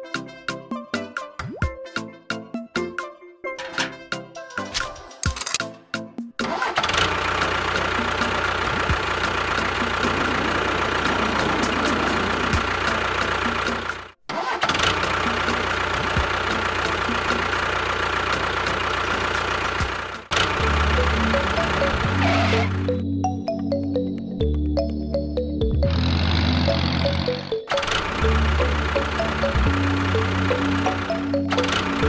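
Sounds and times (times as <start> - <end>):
motor running: 6.8 - 14.2, 14.8 - 23.0, 25.9 - 32.0.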